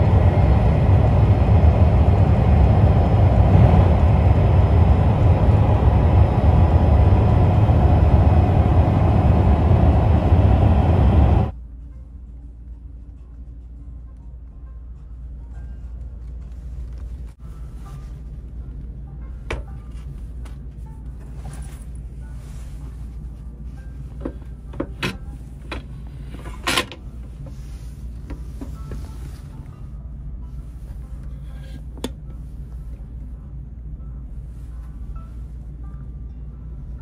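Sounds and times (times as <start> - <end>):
train rumble inside carriage: 0.0 - 37.0.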